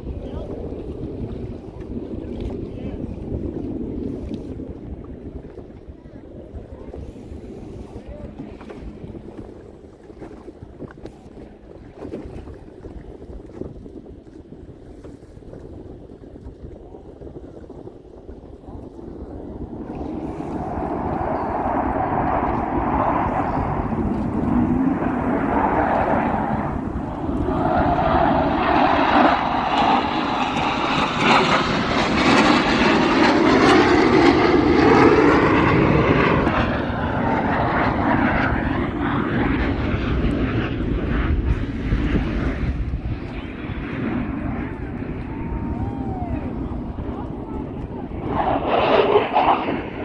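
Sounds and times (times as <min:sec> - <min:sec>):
aircraft roaring past: 0:18.7 - 0:50.0.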